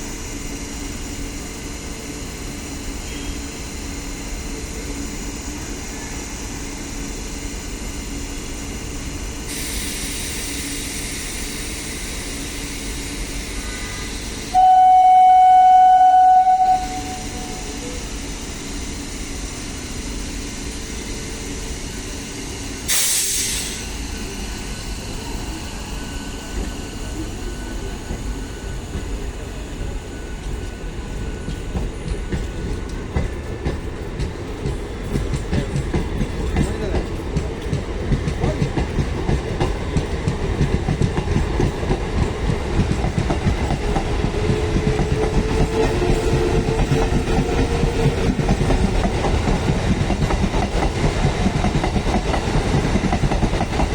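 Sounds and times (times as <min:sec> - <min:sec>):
electric train rumbling: 0:00.0 - 0:53.9
air hiss burst: 0:09.5 - 0:12.5, 0:22.8 - 0:24.2
train horn: 0:14.5 - 0:18.0.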